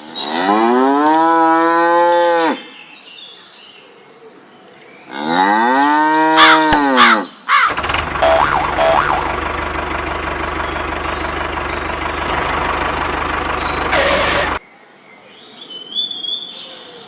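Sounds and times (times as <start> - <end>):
motor running with low throb: 7.7 - 14.6.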